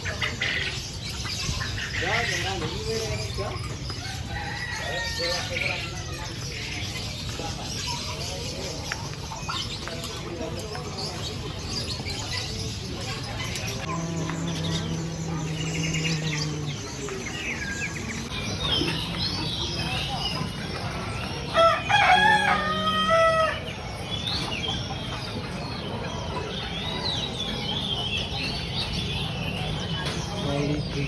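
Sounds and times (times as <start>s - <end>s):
songbirds chirping: 0.0s - 31.0s
rooster crowing: 21.6s - 23.6s.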